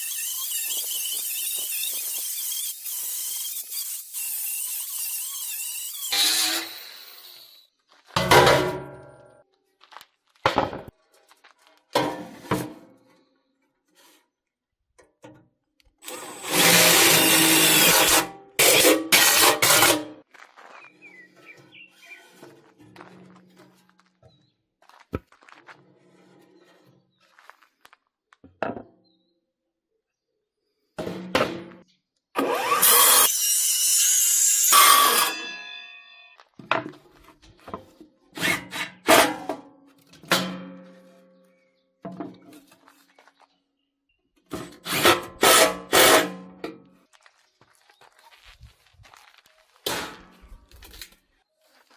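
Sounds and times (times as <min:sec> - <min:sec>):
handheld power tool running: 0:00.0 - 0:07.6, 0:16.0 - 0:20.0, 0:32.4 - 0:36.2.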